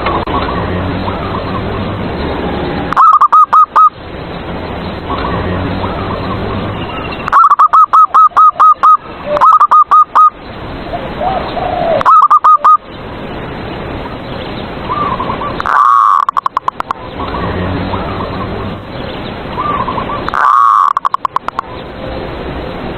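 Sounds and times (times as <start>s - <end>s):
dove cooing: 2.9s - 3.9s, 7.3s - 10.3s, 11.2s - 12.8s, 14.9s - 18.4s, 19.6s - 21.5s.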